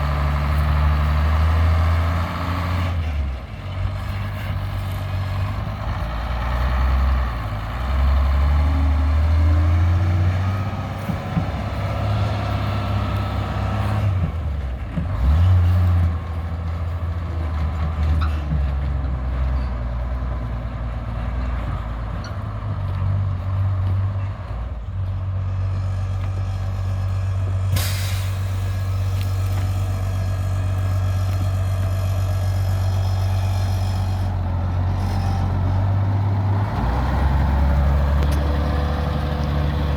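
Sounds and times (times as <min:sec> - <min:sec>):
truck engine running: 0:00.0 - 0:39.9
short sharp hiss: 0:27.7 - 0:30.2.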